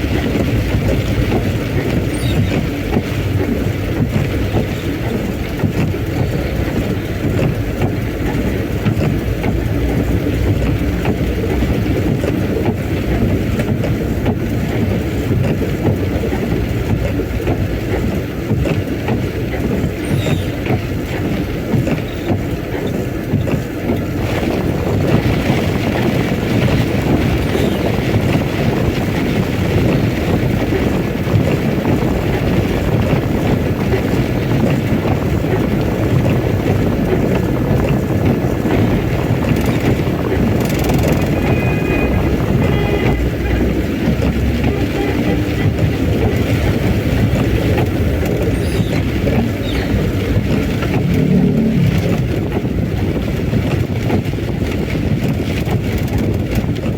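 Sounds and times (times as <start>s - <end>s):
heavy rain: 0.0s - 56.9s
road noise: 0.0s - 56.9s
strong wind: 0.0s - 56.9s.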